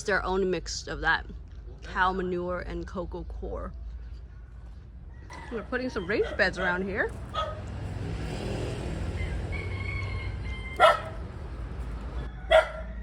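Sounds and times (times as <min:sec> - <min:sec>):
motor vehicle passing: 0:04.6 - 0:13.0
dog barking: 0:06.0 - 0:07.7, 0:10.8 - 0:11.2, 0:12.4 - 0:13.0.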